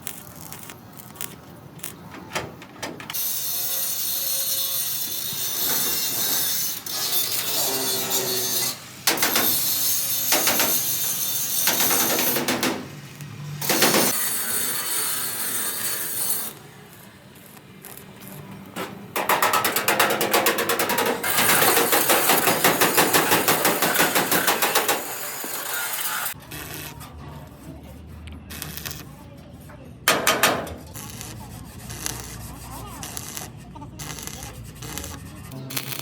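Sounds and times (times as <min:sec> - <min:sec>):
hand tool scraping and rubbing: 0:19.2 - 0:26.4, 0:30.1 - 0:36.0.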